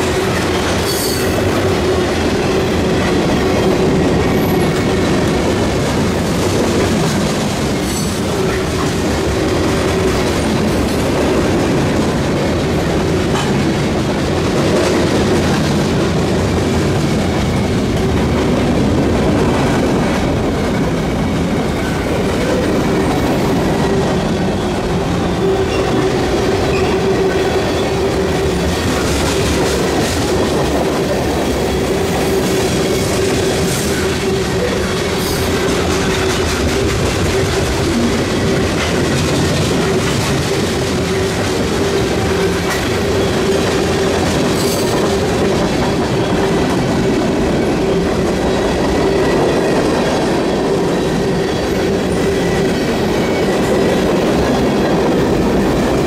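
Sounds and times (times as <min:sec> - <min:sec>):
freight train rumbling past: 0:00.0 - 0:56.0
train cars clanking: 0:00.0 - 0:56.0.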